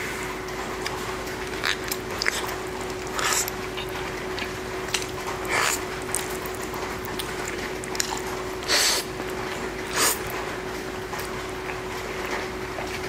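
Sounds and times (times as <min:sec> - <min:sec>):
wet chewing mouth noises: 0:00.8 - 0:10.4
loud slurps or smacks: 0:01.5 - 0:03.6, 0:09.9 - 0:10.3.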